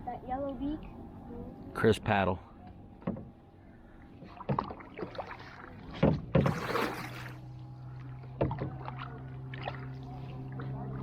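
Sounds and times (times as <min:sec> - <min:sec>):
kayak paddles splashing in water: 0:04.1 - 0:11.0.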